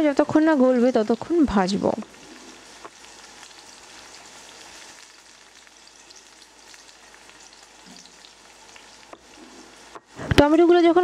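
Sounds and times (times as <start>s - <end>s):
vegetables sizzling in a pan: 0.0s - 11.0s
spatula stirring: 2.0s - 10.1s.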